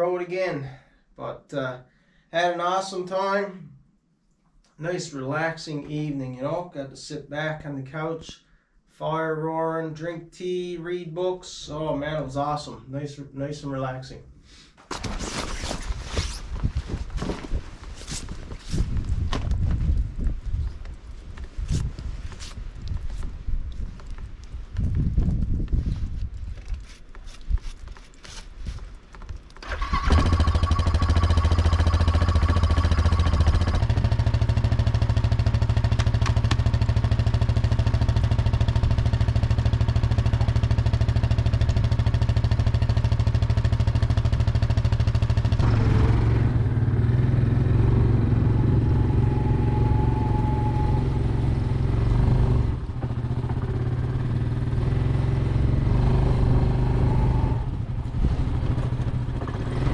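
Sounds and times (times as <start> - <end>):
quad engine idling: 29.6 - 57.8.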